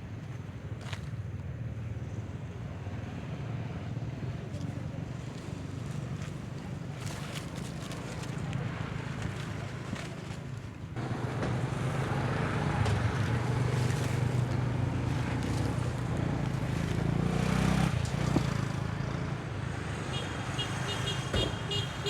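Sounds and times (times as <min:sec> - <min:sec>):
vehicle engine running: 0:08.5 - 0:19.8.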